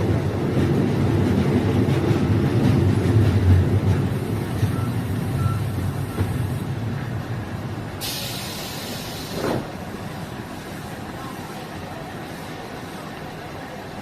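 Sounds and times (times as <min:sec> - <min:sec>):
train engine rumble: 0:00.0 - 0:14.0
air brakes hissing: 0:08.0 - 0:09.7.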